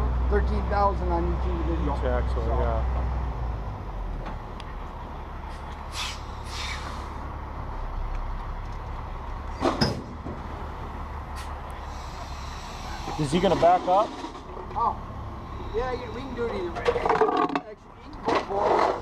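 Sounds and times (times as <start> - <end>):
diesel truck idling: 0.0 - 16.8
short hissing sounds: 5.9 - 7.2, 11.4 - 13.3.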